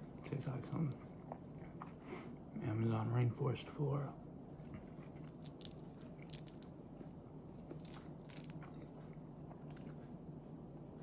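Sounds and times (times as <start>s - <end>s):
faint chewing: 7.6s - 10.9s.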